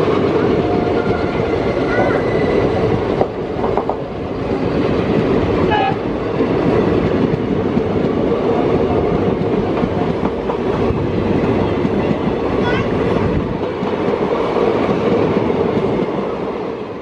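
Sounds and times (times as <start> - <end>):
train wheels rumbling on track: 0.0 - 17.0
train horn toot: 5.7 - 6.0.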